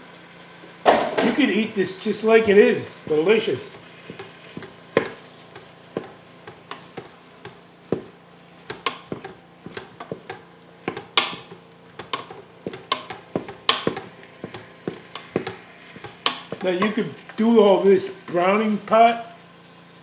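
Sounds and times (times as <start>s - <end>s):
utensil knocking against pot: 3.1s - 17.0s.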